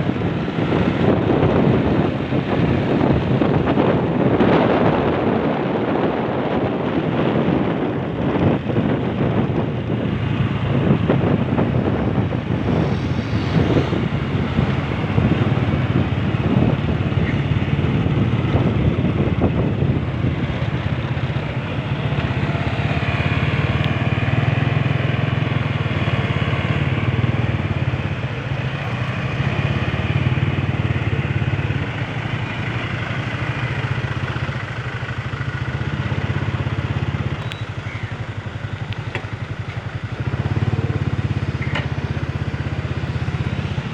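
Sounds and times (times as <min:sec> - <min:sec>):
rough noisy layer: 0:00.0 - 0:34.6
motorcycle engine running: 0:00.0 - 0:43.9.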